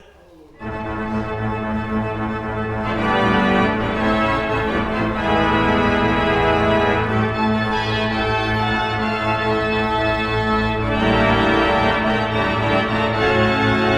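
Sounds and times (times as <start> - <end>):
church organ playing: 0.6 - 13.9.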